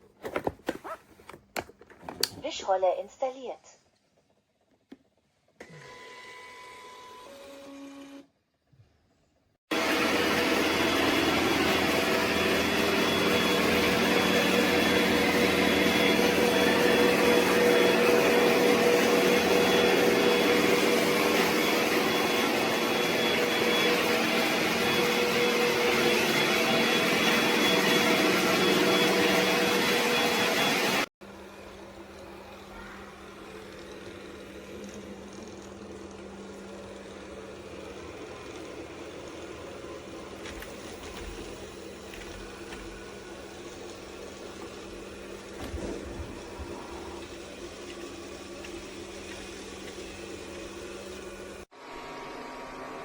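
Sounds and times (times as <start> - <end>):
robot vacuum whirring: 9.7 - 51.6.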